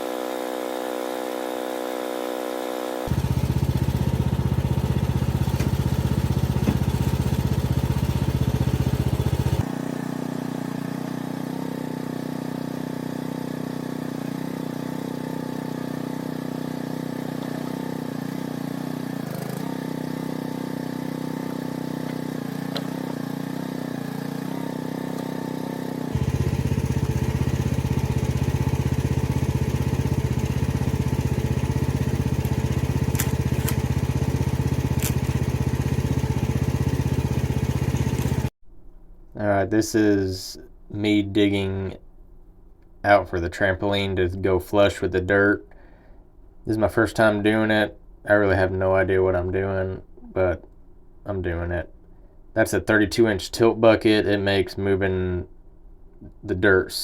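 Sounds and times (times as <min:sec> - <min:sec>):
mini excavator engine running: 0:03.1 - 0:25.3, 0:26.1 - 0:38.5.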